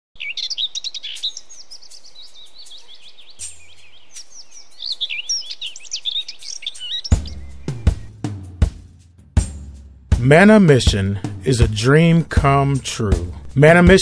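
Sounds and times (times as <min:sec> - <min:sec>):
birds singing: 0:00.2 - 0:08.5.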